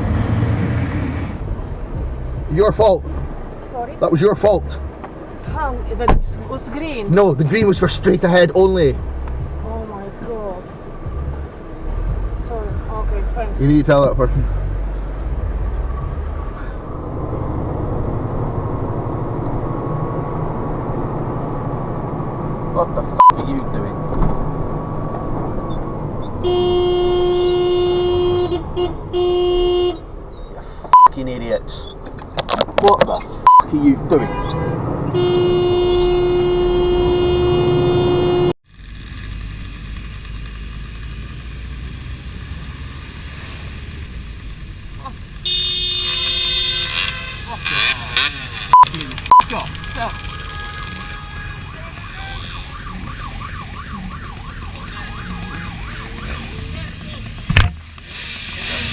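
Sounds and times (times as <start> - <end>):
car road and engine noise: 0.0 - 58.9
car horn blast: 26.4 - 30.1, 33.5 - 38.6, 45.4 - 52.9.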